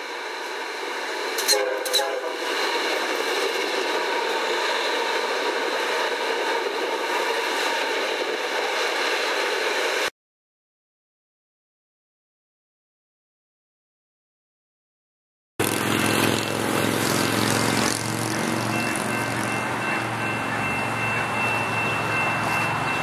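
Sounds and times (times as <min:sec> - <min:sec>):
train passing: 0:00.0 - 0:10.1, 0:15.6 - 0:23.0.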